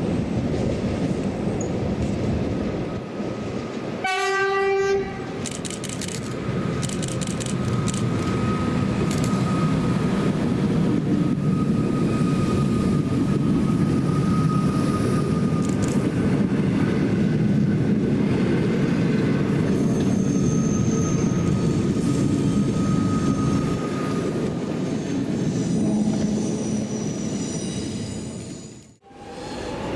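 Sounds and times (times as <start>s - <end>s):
train wheels rumbling on rail: 0.0s - 29.9s
high squeal: 19.6s - 29.9s.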